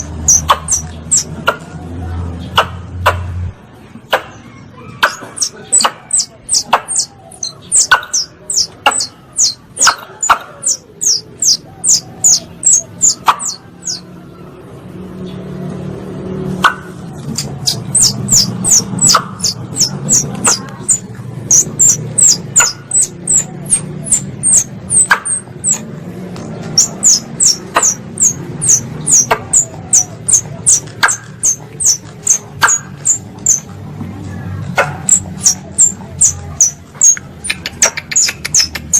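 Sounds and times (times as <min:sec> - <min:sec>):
squirrel call high chirps: 0:00.0 - 0:01.6, 0:05.0 - 0:14.1, 0:16.6 - 0:25.9, 0:26.7 - 0:33.7, 0:35.0 - 0:38.9.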